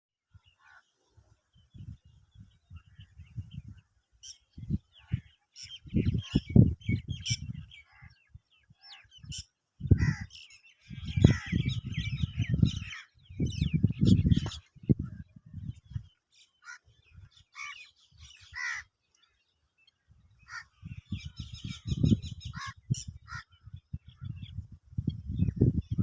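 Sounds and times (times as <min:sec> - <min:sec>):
birds calling and chirping: 0:00.3 - 0:26.0
low rumbling wind buffets: 0:01.5 - 0:16.2, 0:20.0 - 0:26.0.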